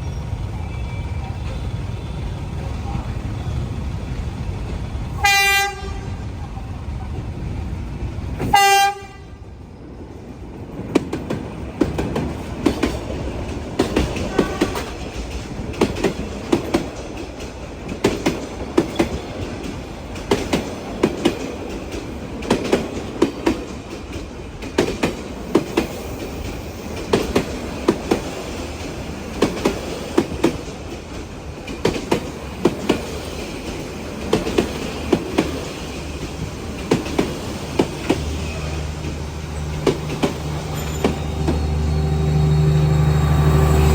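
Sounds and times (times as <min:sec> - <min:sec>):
train horn blast: 0:05.2 - 0:06.3, 0:08.4 - 0:09.4, 0:14.3 - 0:15.1, 0:38.4 - 0:43.9
train wheels clacking on rail joints: 0:10.7 - 0:43.9.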